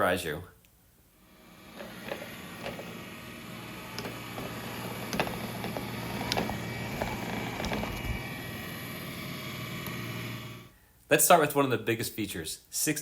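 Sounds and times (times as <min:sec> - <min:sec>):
robot vacuum motor hum: 0:01.2 - 0:10.7
thin high whine: 0:01.2 - 0:10.7
clicks and knocks: 0:01.7 - 0:08.3.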